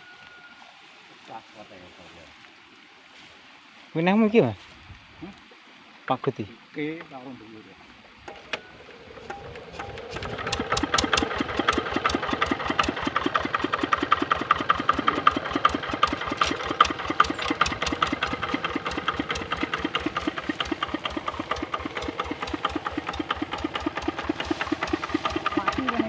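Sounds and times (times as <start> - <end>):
single-cylinder diesel engine running: 8.3 - 26.0.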